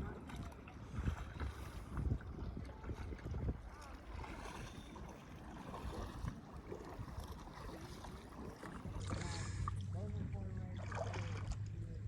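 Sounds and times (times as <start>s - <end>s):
wind on microphone: 0.0s - 5.0s
water sloshing around kayak hull: 0.0s - 12.0s.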